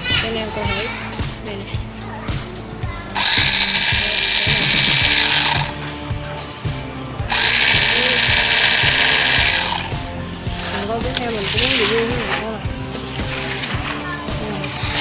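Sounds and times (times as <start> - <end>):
small electric motor whirring: 3.1 - 15.0.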